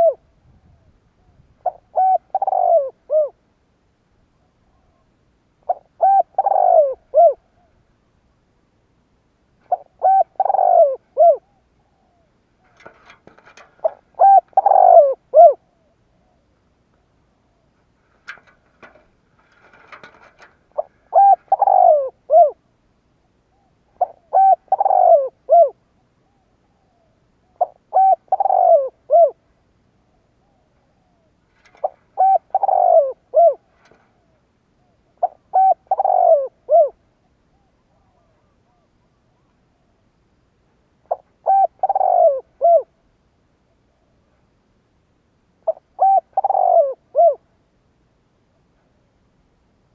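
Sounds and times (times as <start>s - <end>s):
dove cooing: 0.0s - 3.4s, 4.3s - 7.8s, 9.6s - 22.7s, 23.5s - 29.4s, 30.0s - 40.0s, 41.0s - 43.0s, 45.6s - 47.5s.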